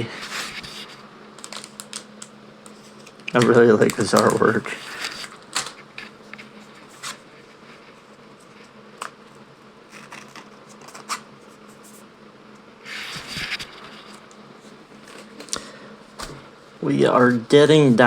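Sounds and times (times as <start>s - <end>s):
faint steady hum: 0.0s - 18.0s
wrapper rustling scrape: 0.1s - 8.6s, 9.9s - 11.9s
cards clicking and tapping: 1.4s - 4.6s.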